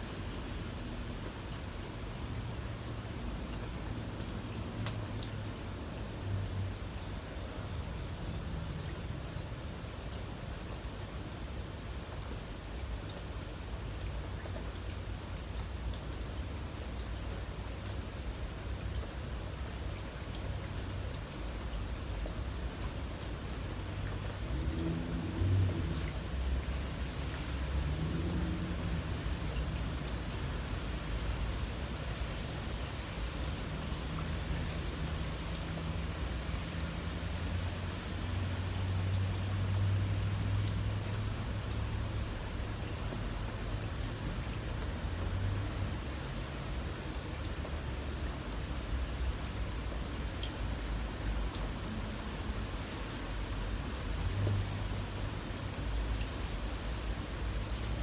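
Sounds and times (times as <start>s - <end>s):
high pulsing insect call: 0.0s - 58.0s
insects trilling: 23.1s - 58.0s.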